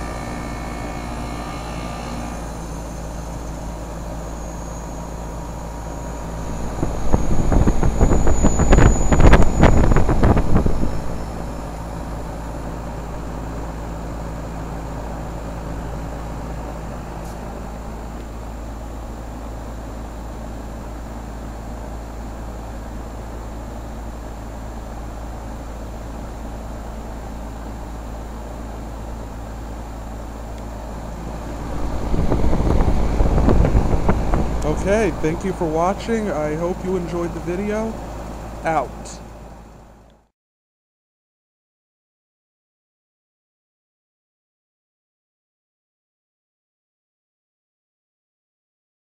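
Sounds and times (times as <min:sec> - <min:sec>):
heat pump humming: 0:00.0 - 0:40.2
loud rushing hiss: 0:30.8 - 0:36.8.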